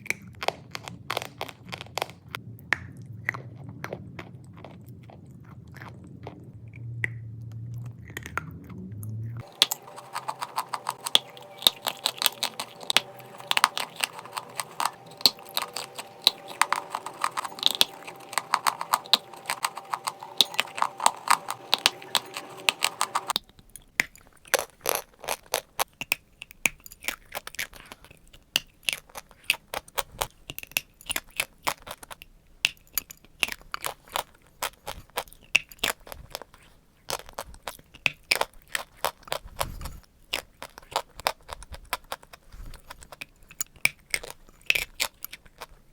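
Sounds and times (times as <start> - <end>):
steady background hum: 1.0 - 23.4
chalk being crunched and chewed: 9.4 - 32.3.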